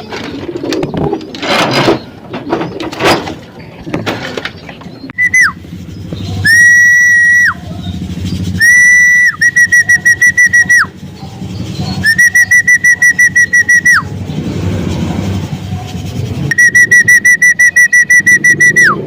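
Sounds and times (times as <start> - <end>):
whistle blasts and trills: 5.2 - 7.7, 8.4 - 11.1, 12.0 - 14.2, 16.3 - 19.0.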